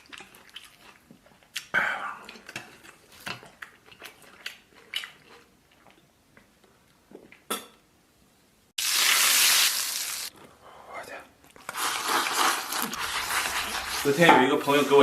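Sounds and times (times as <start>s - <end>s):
utensils scraping a bowl: 11.8s - 15.0s.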